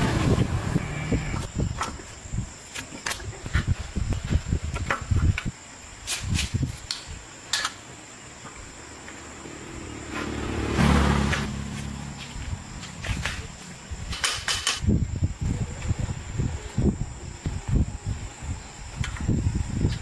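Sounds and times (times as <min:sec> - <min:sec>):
motor humming: 0:00.0 - 0:01.7.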